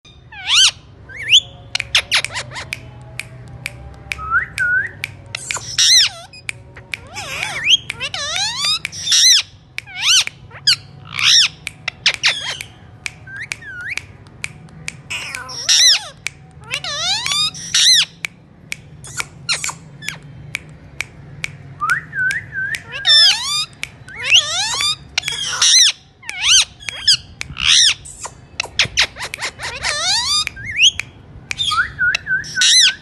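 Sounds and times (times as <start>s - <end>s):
parakeet squawking: 0.1s - 2.8s, 5.4s - 12.8s, 15.0s - 18.2s, 19.0s - 20.3s, 22.8s - 31.0s, 31.6s - 33.0s.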